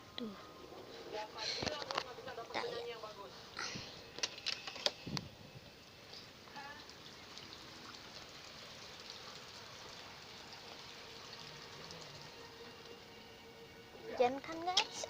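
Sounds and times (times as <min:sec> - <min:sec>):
rain falling: 0:06.4 - 0:13.6.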